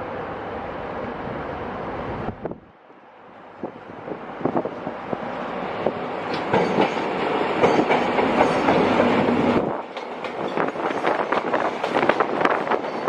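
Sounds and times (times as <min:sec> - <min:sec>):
train wheels clacking over rail joints: 0:06.2 - 0:13.0.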